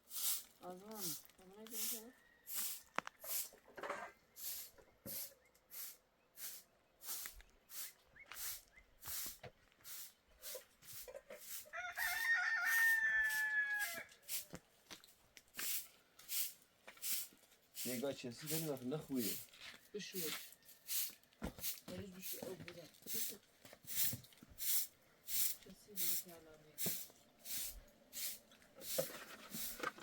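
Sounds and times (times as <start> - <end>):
rooster crowing: 11.7 - 14.2.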